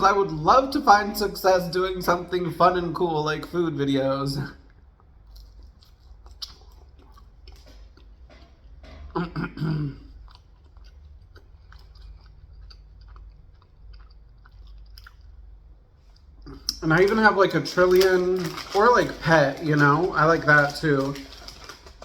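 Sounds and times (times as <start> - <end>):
chewing pizza with crunching: 4.6 - 22.0.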